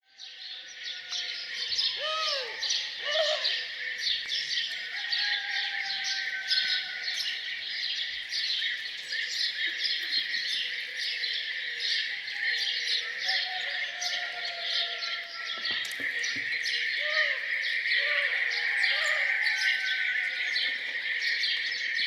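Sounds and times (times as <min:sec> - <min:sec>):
songbirds chirping and singing: 0:00.0 - 0:22.0
low arching bird calls: 0:01.5 - 0:07.4, 0:12.1 - 0:21.9.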